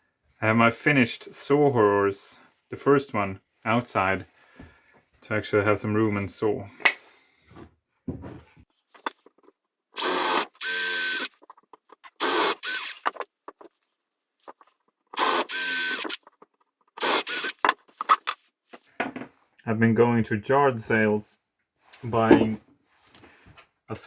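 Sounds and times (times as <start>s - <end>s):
cordless drill driving screws: 10.0s - 11.4s, 12.1s - 13.2s, 15.2s - 16.3s, 17.0s - 17.8s.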